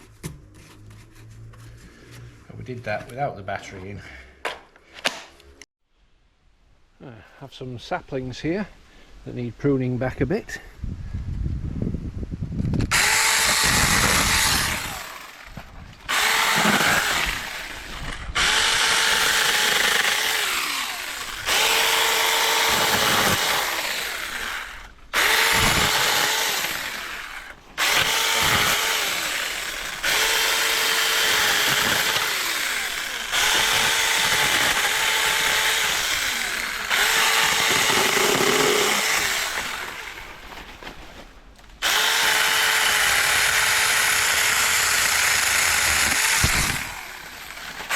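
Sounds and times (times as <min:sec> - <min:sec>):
mini chainsaw cutting wood: 0:12.9 - 0:40.6, 0:41.7 - 0:47.9.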